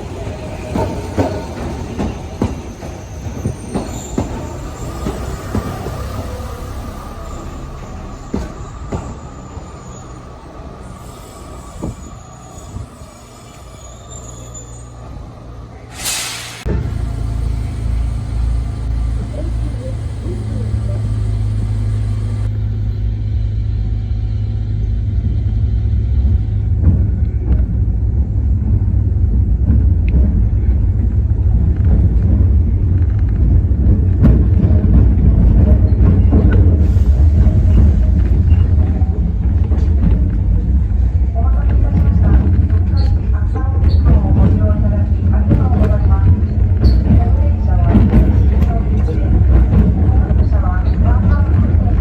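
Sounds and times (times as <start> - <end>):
train wheels squealing: 0.0 - 24.7, 35.6 - 39.2, 46.8 - 47.3
brief hiss: 15.9 - 16.7.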